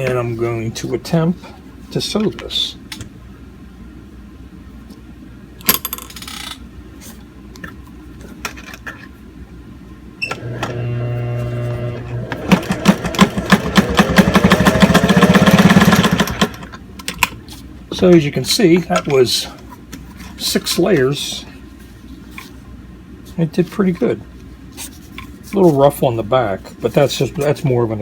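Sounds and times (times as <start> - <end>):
sewing machine motor humming: 10.3 - 16.7.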